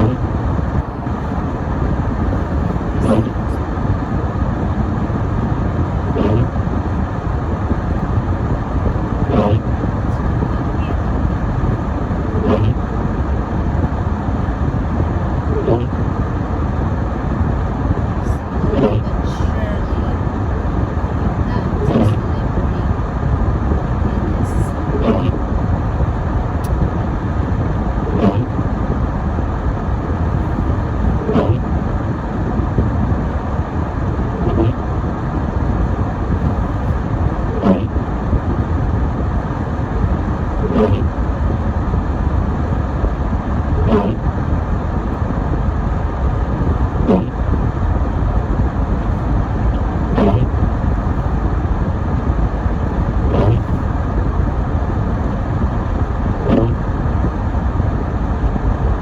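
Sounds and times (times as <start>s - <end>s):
car road and engine rumble: 0.0s - 59.0s
windshield wipers squeaking: 6.2s - 6.5s, 8.8s - 12.8s, 18.3s - 19.5s, 20.8s - 22.9s, 24.1s - 25.4s, 28.1s - 28.5s, 30.2s - 31.7s, 34.4s - 34.8s, 40.7s - 41.1s, 43.8s - 44.2s, 50.2s - 50.5s, 53.0s - 53.8s, 56.4s - 56.8s.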